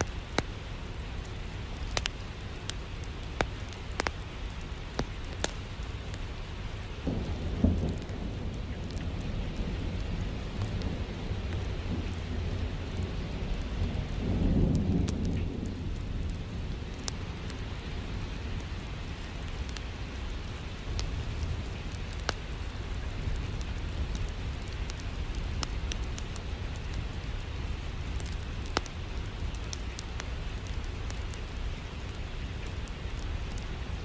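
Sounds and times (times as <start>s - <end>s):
steady rain: 0.0s - 34.0s
wood fire crackling: 0.0s - 34.0s
low roll of thunder: 7.0s - 19.6s.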